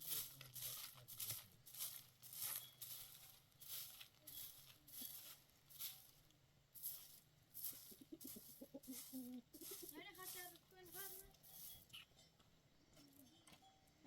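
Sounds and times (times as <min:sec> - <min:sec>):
rhythmic scraping strokes: 0:06.8 - 0:12.0.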